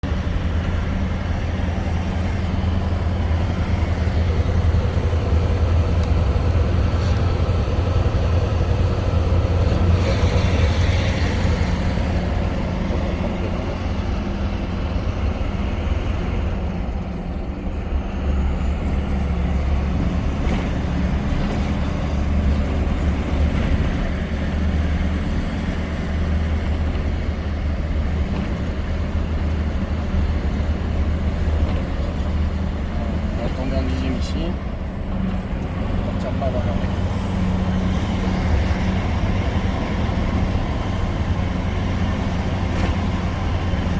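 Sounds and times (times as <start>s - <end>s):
diesel truck engine pulling under load: 0.0s - 43.9s.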